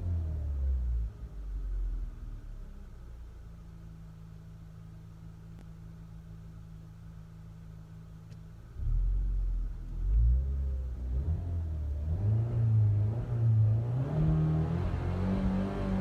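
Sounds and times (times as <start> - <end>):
car engine revving: 8.7 - 16.0.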